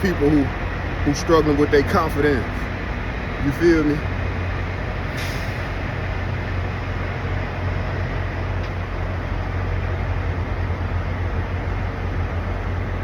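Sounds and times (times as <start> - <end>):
diesel truck engines idling: 0.0 - 13.0
short hiss: 5.1 - 5.8.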